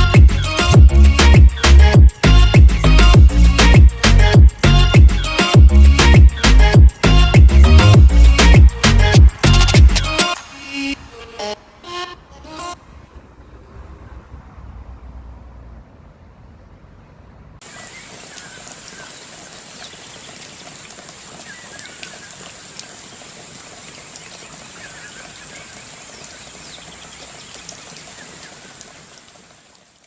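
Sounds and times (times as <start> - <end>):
water pattering like rain: 0.0 - 15.6, 17.6 - 30.0.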